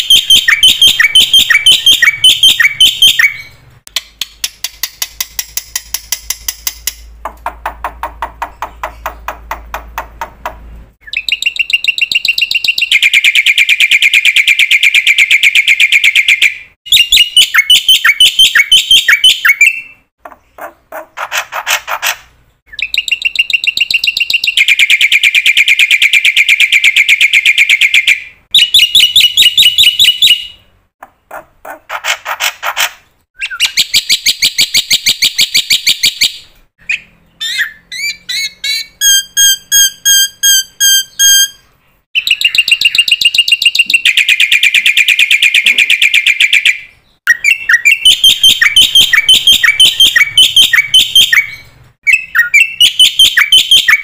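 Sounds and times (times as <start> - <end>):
songbird singing trilled phrases: 0.0 - 3.6, 11.0 - 20.6, 22.7 - 30.6, 33.4 - 54.0.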